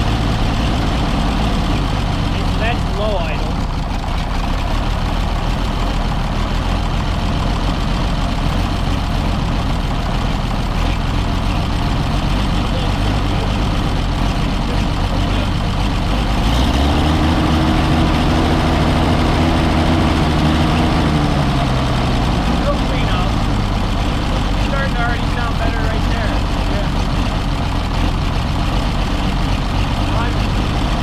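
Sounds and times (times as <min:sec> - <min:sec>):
tractor engine idling: 0:00.0 - 0:31.0.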